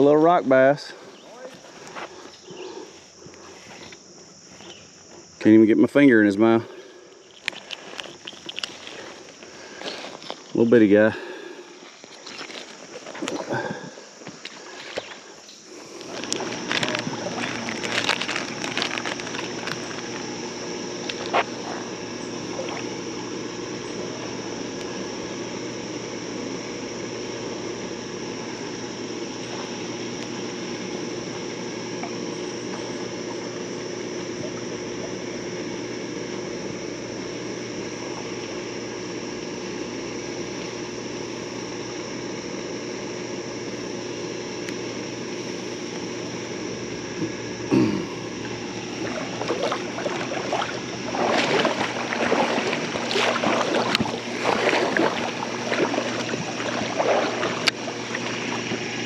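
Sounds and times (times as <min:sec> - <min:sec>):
creek water running: 0:06.2 - 0:41.1, 0:47.2 - 0:59.0.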